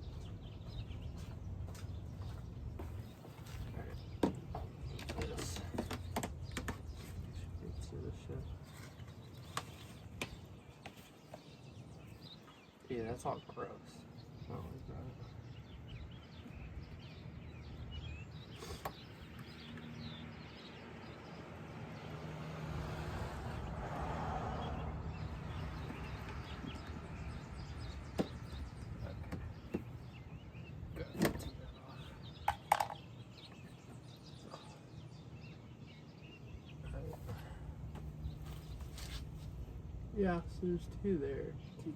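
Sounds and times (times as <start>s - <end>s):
soft hiss of passing vehicle: 21.4s - 26.4s.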